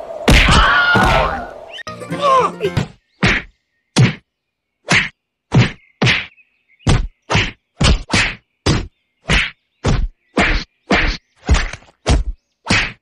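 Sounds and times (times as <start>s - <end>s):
sharp loud whacks: 0.3s - 1.4s, 2.8s - 4.2s, 4.9s - 6.3s, 6.9s - 13.0s.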